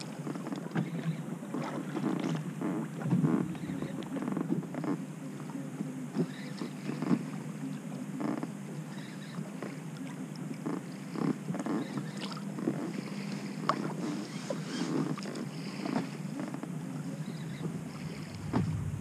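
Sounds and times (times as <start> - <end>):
waves lapping against boat hull: 0.0 - 19.0
steady low rumble: 17.7 - 19.0.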